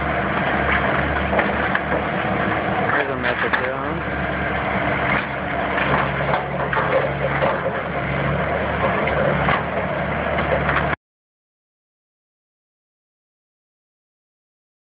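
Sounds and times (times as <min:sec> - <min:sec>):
heavy machinery engine running: 0:00.0 - 0:11.0.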